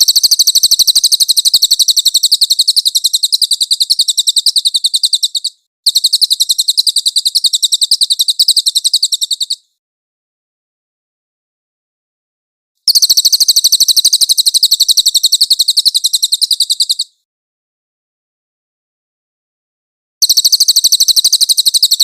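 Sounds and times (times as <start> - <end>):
songbird trilling: 0.0 - 9.6, 12.9 - 17.2, 20.2 - 22.0.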